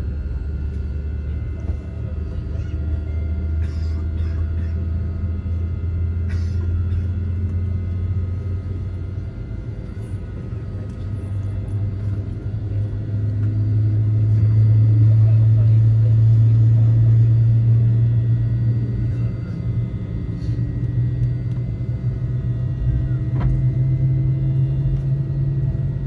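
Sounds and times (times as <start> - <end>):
jet engine cabin rumble: 0.0 - 26.0.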